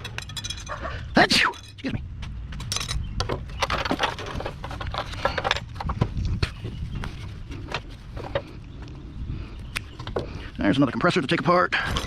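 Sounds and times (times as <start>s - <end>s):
metal and plastic parts clattering: 0.0s - 0.8s, 2.6s - 6.2s.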